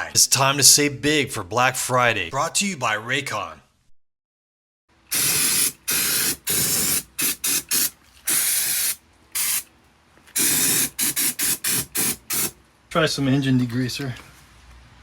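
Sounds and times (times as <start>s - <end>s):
aerosol spray can hissing: 5.1s - 9.7s, 10.4s - 12.6s.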